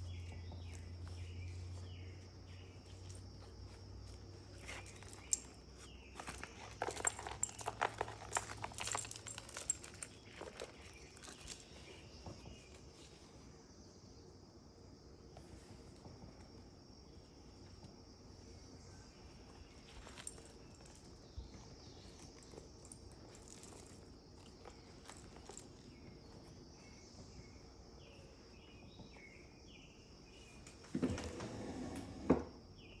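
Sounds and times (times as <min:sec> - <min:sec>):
paper rustling: 0:00.0 - 0:13.5
insect chirring: 0:00.0 - 0:30.6.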